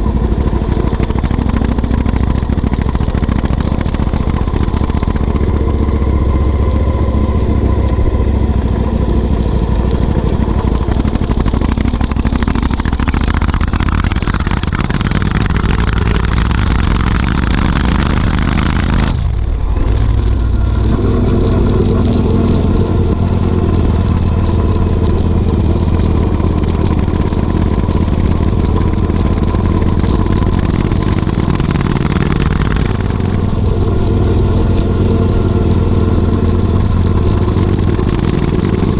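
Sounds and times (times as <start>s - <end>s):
motorcycle engine rumble: 0.0s - 38.9s.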